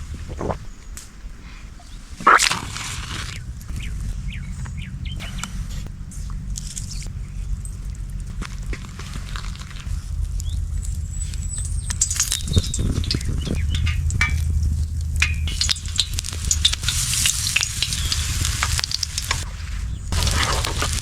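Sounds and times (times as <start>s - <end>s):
food sizzling in a pan: 15.2s - 21.0s
utensil clicking and scraping: 20.1s - 21.0s.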